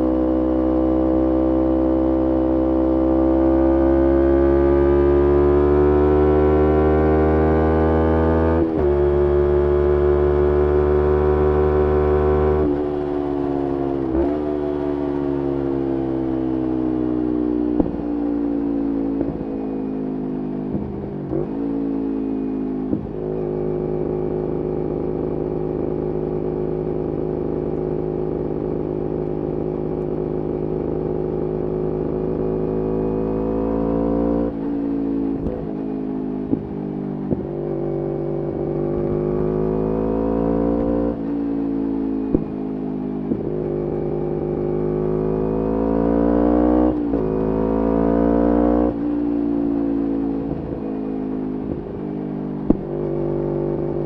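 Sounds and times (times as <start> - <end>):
motorcycle engine running: 6.8 - 54.0.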